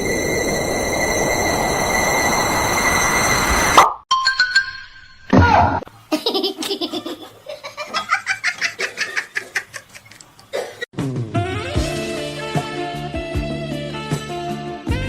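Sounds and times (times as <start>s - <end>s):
person laughing hard: 6.1s - 10.8s.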